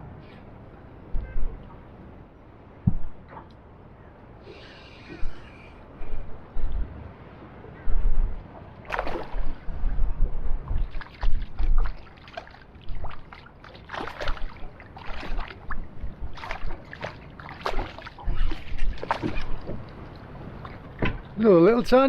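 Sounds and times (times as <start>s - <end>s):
wind rumbling on microphone: 0.0s - 22.0s
water splashing against boat hull: 5.0s - 22.0s.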